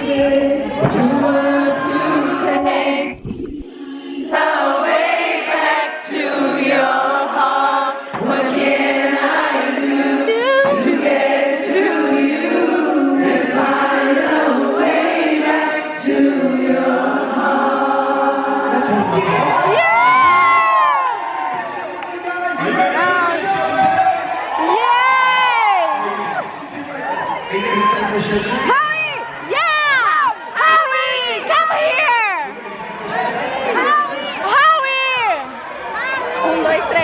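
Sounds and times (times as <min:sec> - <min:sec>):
voices singing in harmony: 0:00.0 - 0:19.9.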